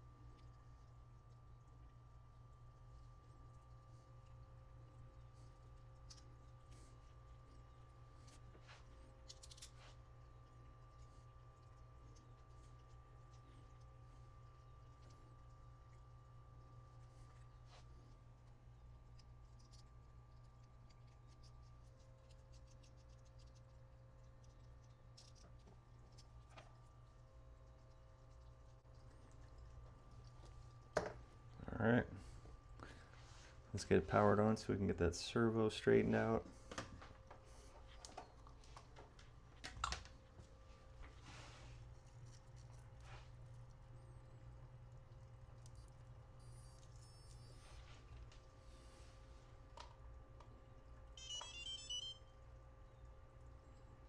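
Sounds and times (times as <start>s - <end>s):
low room hum: 0.0s - 54.0s
small parts clicking and tapping: 9.2s - 9.8s.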